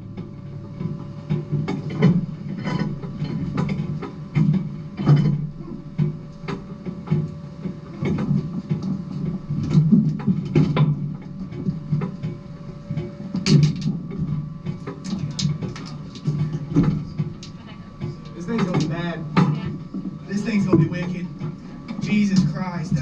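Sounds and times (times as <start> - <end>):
sharp knocks and rattles: 0.2 - 23.0
race car engine drone: 11.6 - 23.0.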